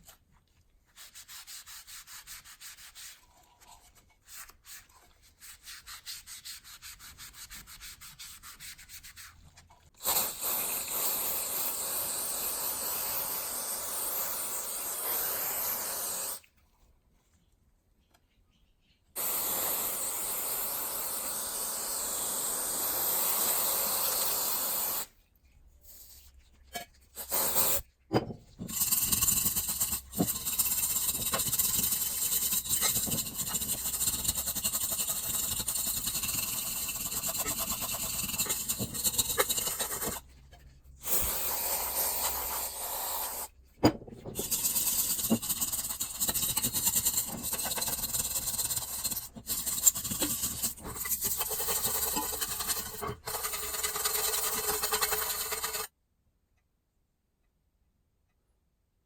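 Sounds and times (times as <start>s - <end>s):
workshop tool rasping hiss: 10.0s - 16.4s, 19.2s - 25.1s, 27.2s - 27.9s, 41.0s - 43.5s.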